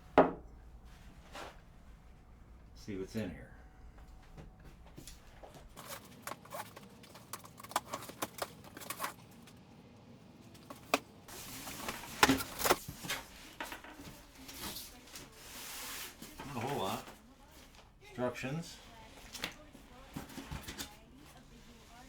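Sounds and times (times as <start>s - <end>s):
packaging rustling and scraping: 5.1s - 9.6s, 10.5s - 17.2s, 18.9s - 22.0s.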